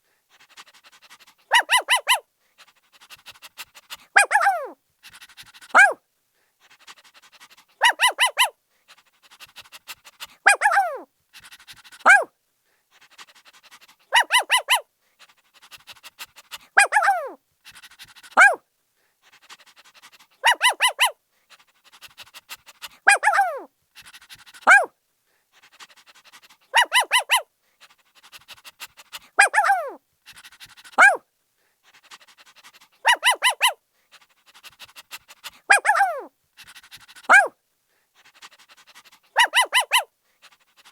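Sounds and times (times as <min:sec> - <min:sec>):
puppy yelps: 0:00.8 - 0:02.3, 0:03.9 - 0:06.0, 0:07.2 - 0:08.6, 0:09.3 - 0:12.3, 0:14.1 - 0:14.9, 0:16.5 - 0:18.6, 0:19.6 - 0:21.2, 0:22.8 - 0:24.9, 0:25.9 - 0:27.5, 0:28.2 - 0:31.2, 0:32.0 - 0:33.8, 0:34.6 - 0:37.6, 0:38.4 - 0:40.1
puppy yapping: 0:01.5 - 0:02.2, 0:04.2 - 0:04.8, 0:05.7 - 0:06.0, 0:07.8 - 0:08.5, 0:10.4 - 0:11.1, 0:12.0 - 0:12.3, 0:14.1 - 0:14.8, 0:16.8 - 0:17.4, 0:18.4 - 0:18.6, 0:20.4 - 0:21.2, 0:23.1 - 0:23.7, 0:24.6 - 0:24.9, 0:26.7 - 0:27.4, 0:29.3 - 0:30.0, 0:31.0 - 0:31.2, 0:33.0 - 0:33.8, 0:35.5 - 0:36.3, 0:37.2 - 0:37.5, 0:39.4 - 0:40.1.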